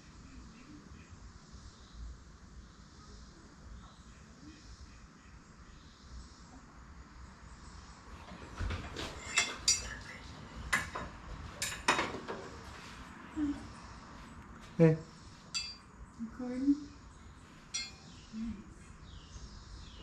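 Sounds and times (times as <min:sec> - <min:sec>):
metal blade clinking: 0:15.5 - 0:15.8, 0:17.7 - 0:18.2.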